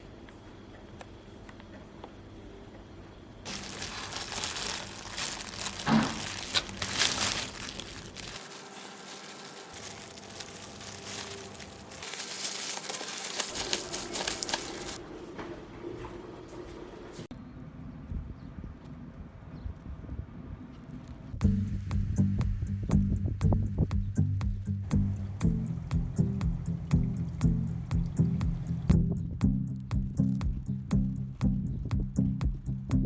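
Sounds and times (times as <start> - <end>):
wrapping crumpled and torn: 3.5 - 15.0.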